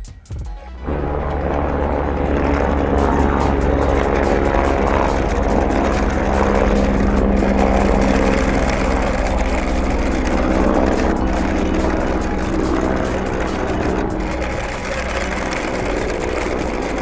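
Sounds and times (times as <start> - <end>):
toy helicopter rotors whirring: 2.5 - 17.0.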